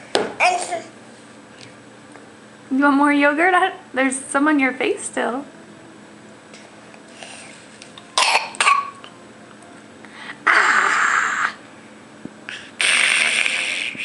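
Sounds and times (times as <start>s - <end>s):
child making raspy throat noises: 10.4s - 11.6s, 12.6s - 14.0s.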